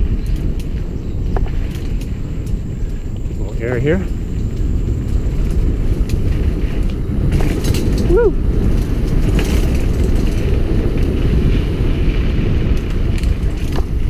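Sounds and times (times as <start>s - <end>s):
bike rattling: 0.0s - 14.0s
bike tyre noise on dirt: 0.0s - 14.0s
wind buffeting: 0.0s - 14.0s
rider shouting woo: 8.0s - 8.4s.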